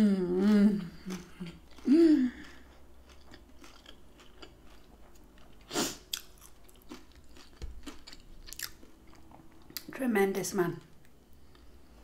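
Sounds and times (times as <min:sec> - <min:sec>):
close-up chewing: 0:00.8 - 0:09.9.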